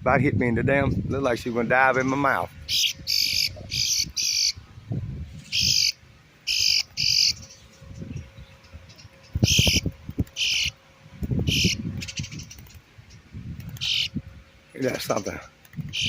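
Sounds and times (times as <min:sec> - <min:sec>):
birds squawking: 0:01.7 - 0:04.6, 0:05.4 - 0:10.8, 0:11.4 - 0:14.2, 0:14.8 - 0:16.0.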